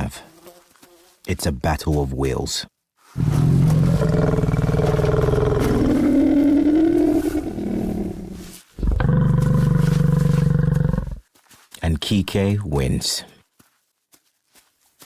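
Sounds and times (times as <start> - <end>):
lions growling: 3.2 - 11.2.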